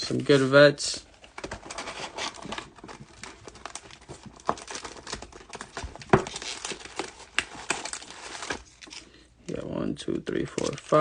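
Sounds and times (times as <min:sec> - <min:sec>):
foil packs crinkling: 0:01.4 - 0:09.2.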